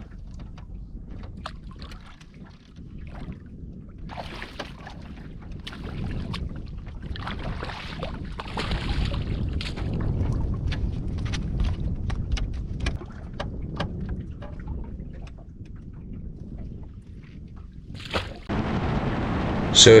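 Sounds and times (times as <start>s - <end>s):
wind rumble on microphone: 0.0s - 20.0s
water splashing: 4.0s - 10.8s, 12.9s - 19.0s.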